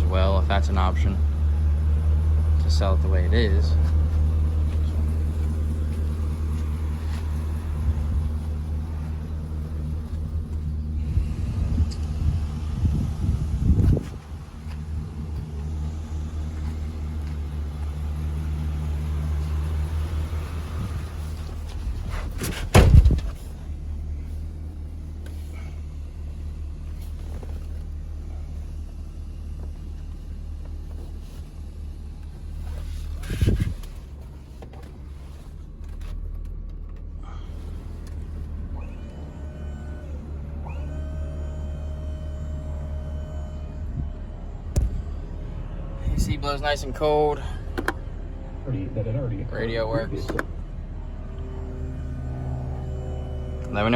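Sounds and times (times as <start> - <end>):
dump truck engine idling: 0.0 - 53.9
faint steady tones: 37.4 - 53.9.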